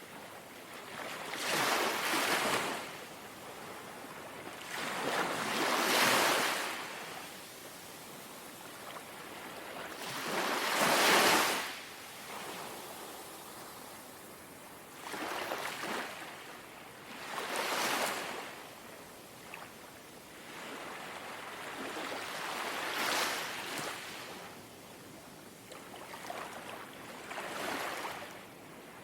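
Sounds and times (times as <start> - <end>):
sea waves lapping on shore: 8.7 - 14.0.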